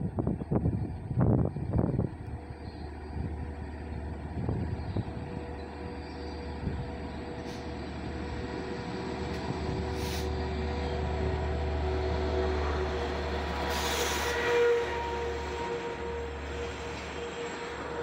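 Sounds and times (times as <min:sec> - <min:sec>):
diesel locomotive engine drone: 0:00.0 - 0:18.0
air hiss: 0:09.8 - 0:10.4, 0:13.6 - 0:14.4
train wheels squealing: 0:12.0 - 0:18.0.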